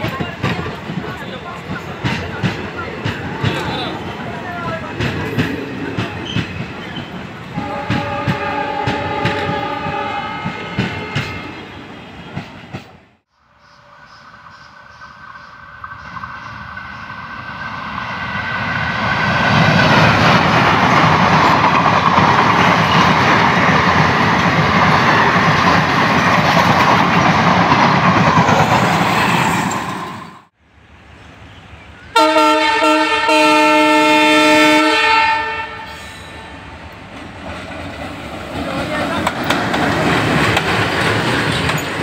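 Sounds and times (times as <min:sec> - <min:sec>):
train passing on rails: 0:00.0 - 0:42.0
locomotive air horn: 0:07.6 - 0:11.6, 0:32.2 - 0:36.7.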